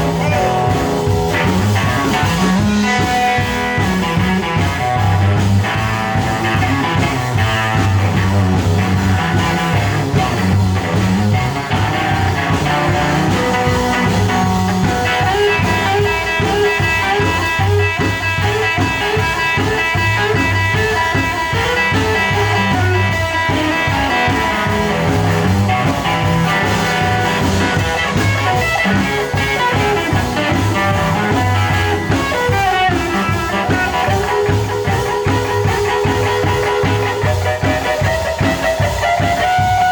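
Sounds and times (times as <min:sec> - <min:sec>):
electric guitar: 0:00.0 - 0:39.9
live blues band playing: 0:00.0 - 0:39.9.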